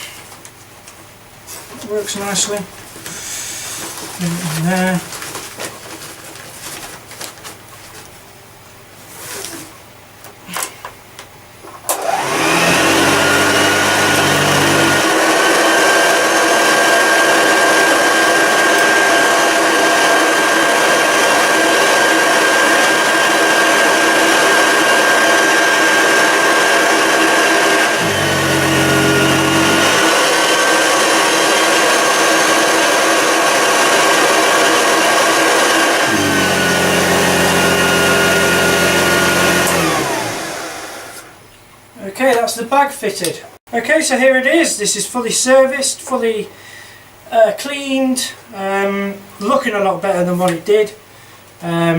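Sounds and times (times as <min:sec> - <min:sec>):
vacuum cleaner motor whining: 0:11.9 - 0:41.4.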